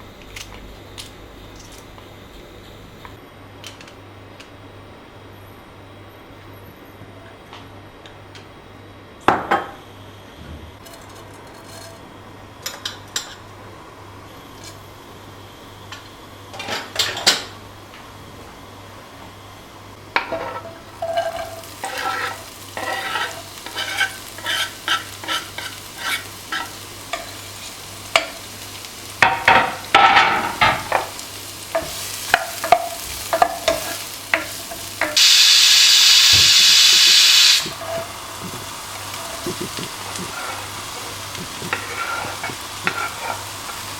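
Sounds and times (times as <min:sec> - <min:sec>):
metal spoon scraping a pan: 0:20.2 - 0:27.3, 0:40.2 - 0:43.5
food frying: 0:20.5 - 0:43.9
loud steady hiss: 0:21.6 - 0:43.9.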